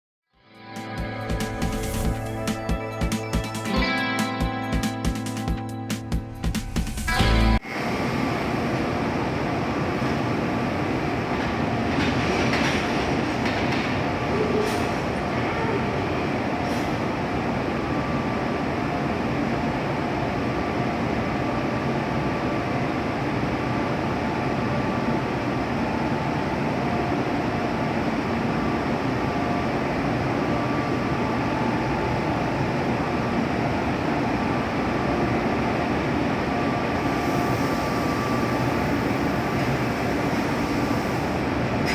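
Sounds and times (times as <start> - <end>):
train wheels rumbling on rail: 9.2 - 17.6, 35.3 - 41.9.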